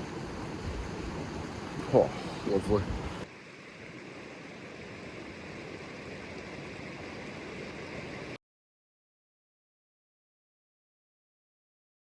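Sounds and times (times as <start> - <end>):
waterfall rushing: 0.0 - 3.2.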